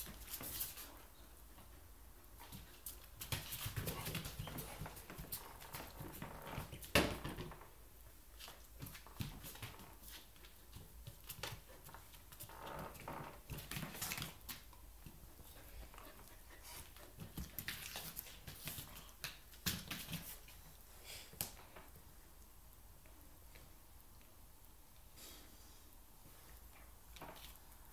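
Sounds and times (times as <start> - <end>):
dogs scuffling: 0.0 - 7.7, 8.4 - 20.8.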